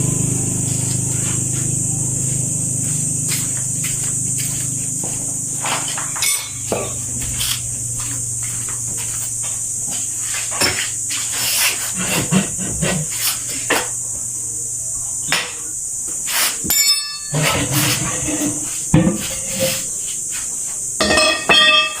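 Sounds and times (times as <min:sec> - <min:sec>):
low hum: 0:00.0 - 0:11.1
steady high hiss: 0:00.0 - 0:22.0
hand tools clicking and knocking: 0:05.6 - 0:07.6, 0:21.0 - 0:22.0.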